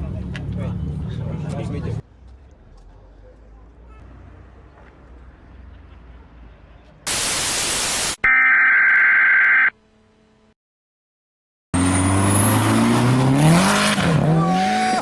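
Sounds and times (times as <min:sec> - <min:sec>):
static hiss burst: 0:07.1 - 0:08.2.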